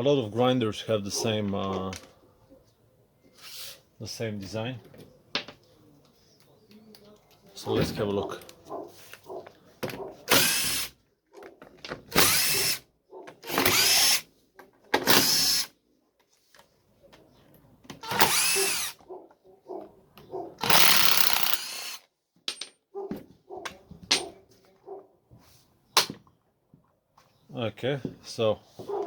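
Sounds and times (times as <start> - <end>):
angle grinder motor whining: 18.0 - 19.0, 20.6 - 22.0.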